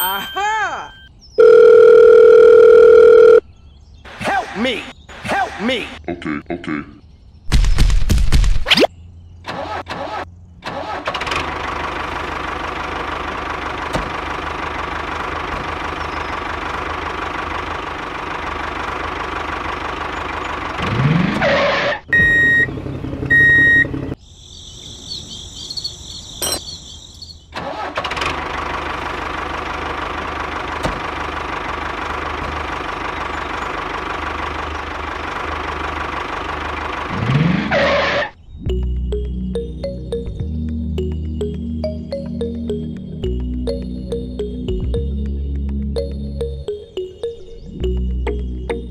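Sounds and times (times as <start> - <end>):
small tractor engine running: 10.7 - 24.2, 27.6 - 38.9.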